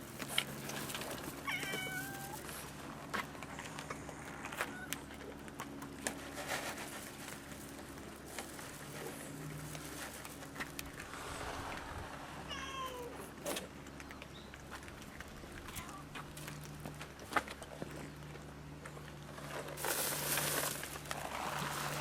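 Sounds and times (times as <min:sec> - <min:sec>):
cats eating clicks and taps: 0:00.0 - 0:06.3, 0:13.7 - 0:19.5
cat meowing: 0:01.4 - 0:02.4, 0:04.6 - 0:05.0, 0:12.5 - 0:13.2.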